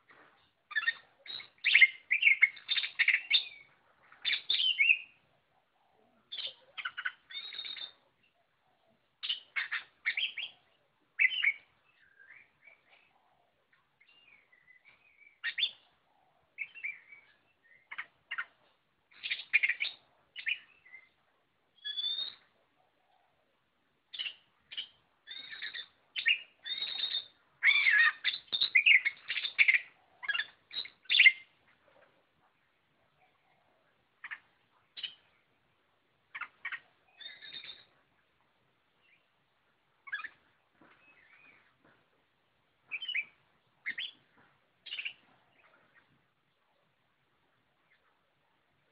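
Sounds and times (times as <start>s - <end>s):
songbird singing varied phrases: 0.0s - 48.9s
soft gliding bird whistles: 5.8s - 8.0s, 21.8s - 22.5s, 24.2s - 31.5s, 37.1s - 37.9s.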